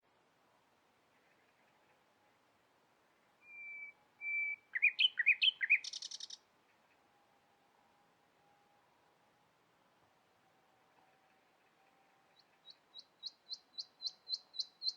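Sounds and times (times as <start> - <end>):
songbird singing: 3.4 - 6.8, 11.5 - 14.9.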